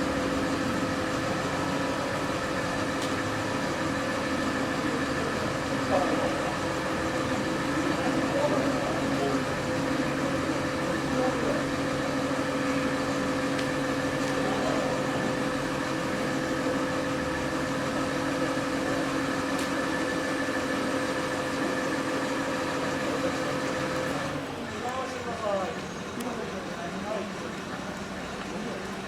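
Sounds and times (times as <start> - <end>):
steady machine hum: 0.0 - 29.0.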